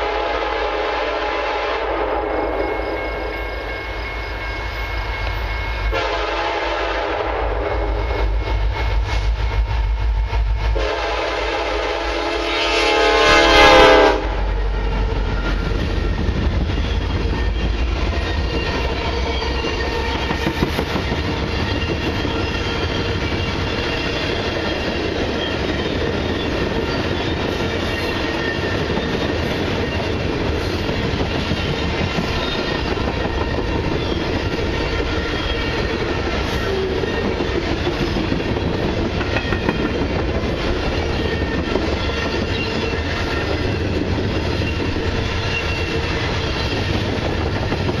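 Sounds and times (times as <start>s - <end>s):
train air horn blast: 0.0s - 2.6s, 5.9s - 8.4s, 10.7s - 14.6s
diesel locomotive rumble: 3.2s - 48.0s.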